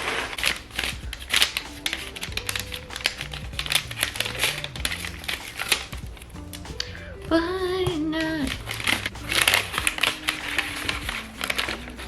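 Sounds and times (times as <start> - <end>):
gift wrapping crinkling: 0.0 - 7.0
soft background music: 0.0 - 12.0.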